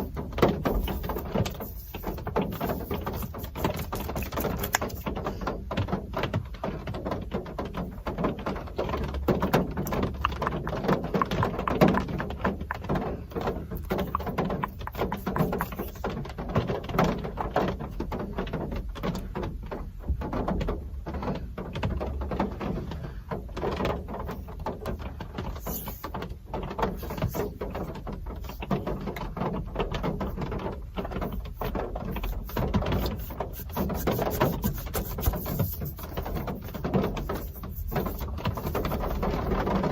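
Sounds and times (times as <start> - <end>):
rain pattering on hard surface: 4.4 - 14.6.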